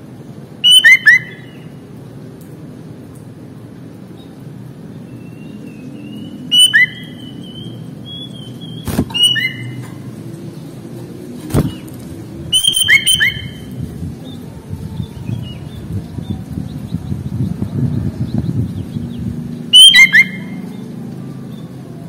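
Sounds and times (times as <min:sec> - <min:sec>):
bird singing whistled notes: 0:00.6 - 0:01.6, 0:05.1 - 0:09.8, 0:12.5 - 0:13.7, 0:18.2 - 0:20.8.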